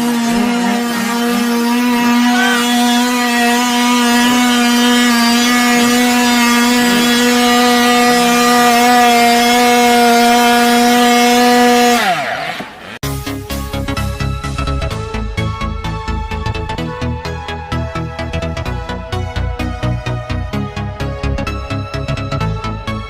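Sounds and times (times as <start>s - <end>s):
dirt bike engine revving: 0.0s - 23.0s
electronic dance music: 0.2s - 6.4s.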